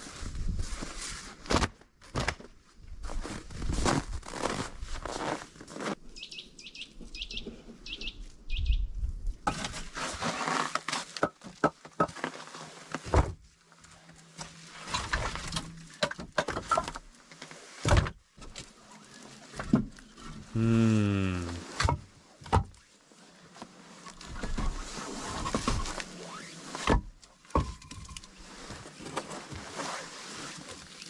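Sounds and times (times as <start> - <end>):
crunching and rustling: 2.0 - 11.2
small bird chirping: 6.0 - 9.4.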